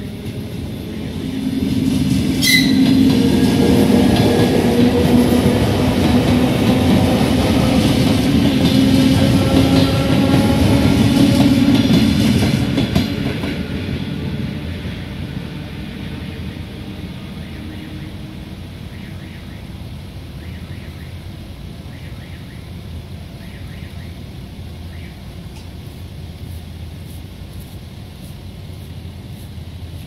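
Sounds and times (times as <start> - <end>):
train wheels clattering on rails: 0.0 - 16.0.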